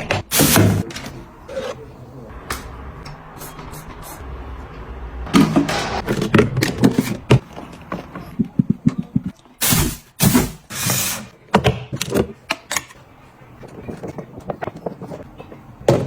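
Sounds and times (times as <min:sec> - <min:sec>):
items clicking and clattering: 0:05.3 - 0:09.6, 0:10.2 - 0:13.0, 0:13.6 - 0:16.0.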